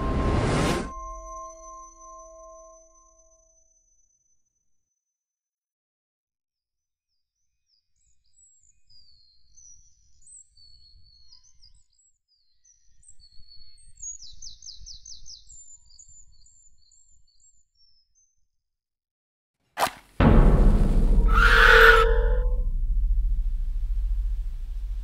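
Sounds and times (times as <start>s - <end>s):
faint low rumble: 20.2s - 25.0s
bird trill: 21.2s - 22.7s.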